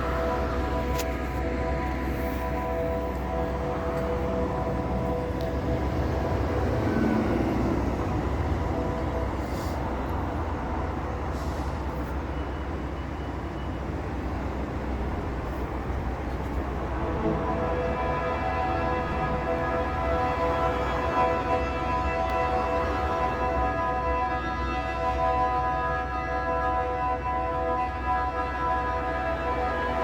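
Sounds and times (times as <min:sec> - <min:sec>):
low rumbling drone: 0:00.0 - 0:11.5.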